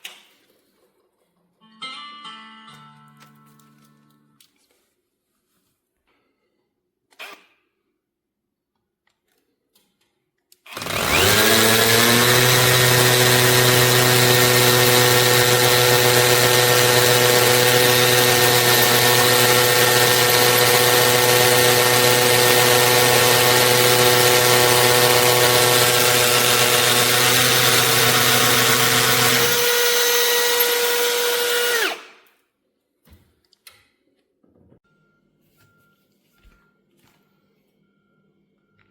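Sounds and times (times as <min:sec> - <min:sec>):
cordless drill whining: 0:10.7 - 0:32.2.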